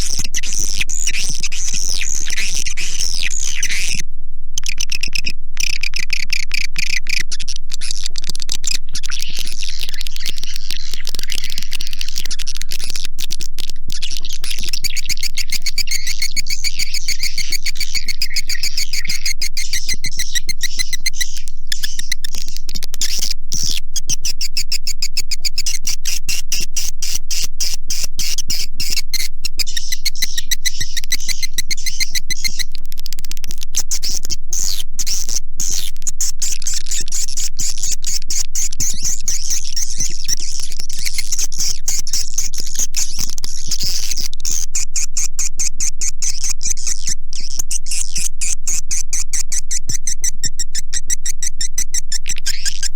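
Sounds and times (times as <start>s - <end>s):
steady low hum: 0.0s - 52.9s
recorded swiftlet calls twittering: 4.6s - 52.9s.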